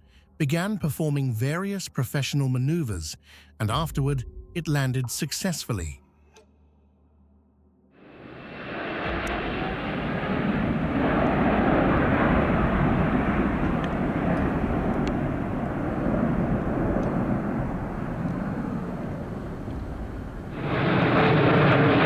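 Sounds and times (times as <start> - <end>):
jet airliner engine rushing: 8.0 - 22.0.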